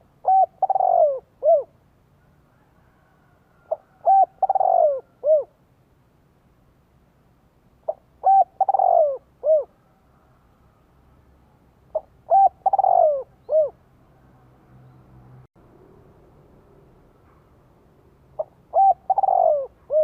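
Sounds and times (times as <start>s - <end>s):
dove cooing: 0.0s - 1.8s, 3.3s - 5.6s, 7.8s - 10.0s, 11.9s - 13.8s, 18.4s - 20.0s.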